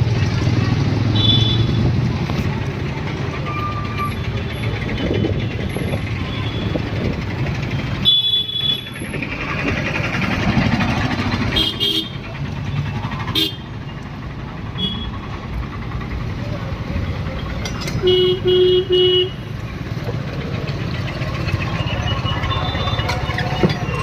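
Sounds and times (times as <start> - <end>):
busy street traffic: 0.0 - 24.0
vehicle horn toots: 1.2 - 1.8, 11.6 - 12.1, 18.0 - 19.4.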